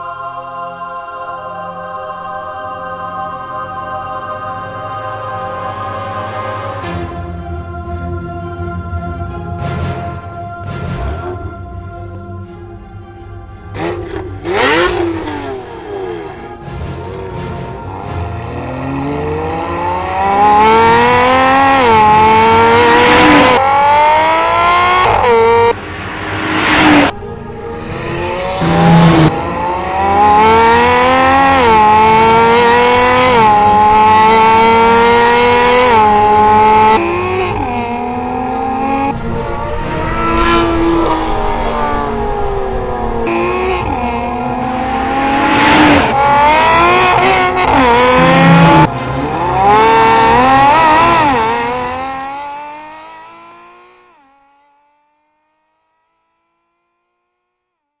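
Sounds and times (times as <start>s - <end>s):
car engine accelerating: 13.6s - 54.9s.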